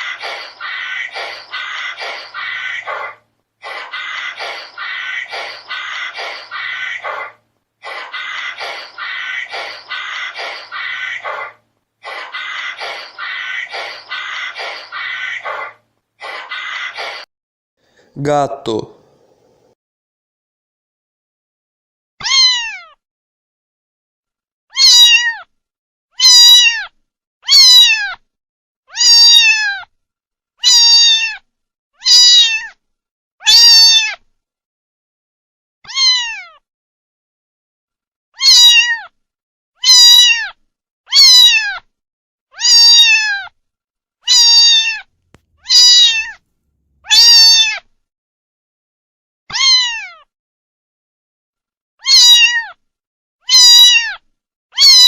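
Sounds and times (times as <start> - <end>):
cat meowing: 22.2 - 23.0, 24.7 - 25.5, 26.2 - 28.2, 28.9 - 29.8, 30.6 - 31.4, 32.0 - 32.8, 33.4 - 34.2, 35.8 - 36.6, 38.4 - 39.1, 39.8 - 40.5, 41.1 - 41.8, 42.5 - 43.5, 44.3 - 46.4, 47.0 - 47.8, 49.5 - 50.3, 52.0 - 52.8, 53.4 - 54.2, 54.8 - 55.0.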